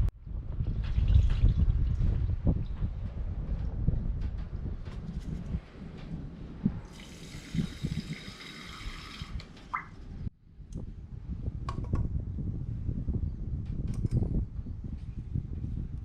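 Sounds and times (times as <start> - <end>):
steady low rumble: 0.0 - 8.0, 9.9 - 16.0
water pouring into a pot: 6.9 - 9.4.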